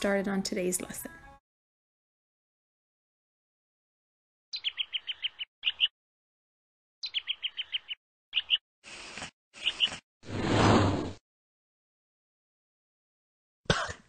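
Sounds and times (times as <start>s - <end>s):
bird chirping trills: 4.5s - 5.9s, 7.0s - 8.6s, 9.6s - 10.0s.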